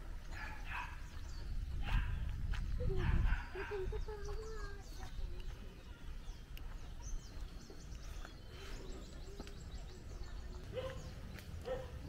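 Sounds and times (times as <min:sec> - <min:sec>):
small birds chirping faintly: 0:00.0 - 0:12.0.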